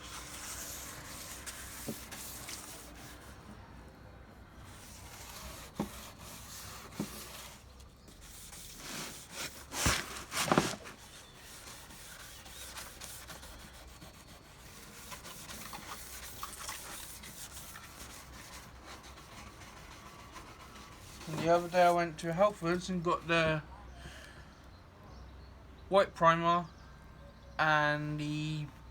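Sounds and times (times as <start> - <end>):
wet sanding by hand: 0.0 - 3.4, 4.7 - 22.5.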